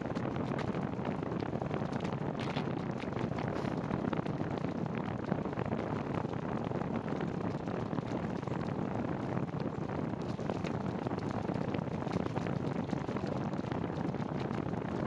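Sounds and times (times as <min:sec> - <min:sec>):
rain and wet tyres hissing: 0:03.4 - 0:03.9.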